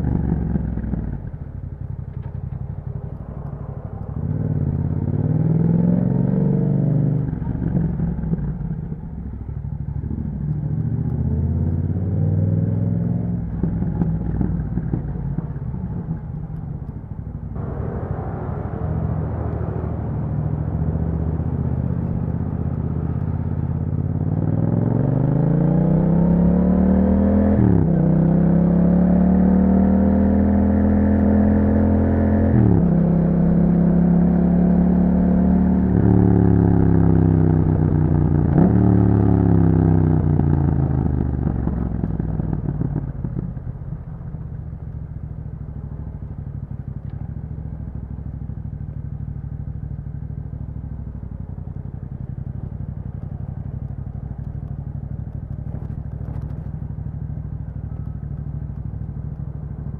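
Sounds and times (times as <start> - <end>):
motorcycle engine idling: 0.0 - 5.5, 13.4 - 24.2, 40.5 - 59.9
motorcycle engine revving and shifting: 0.0 - 59.9.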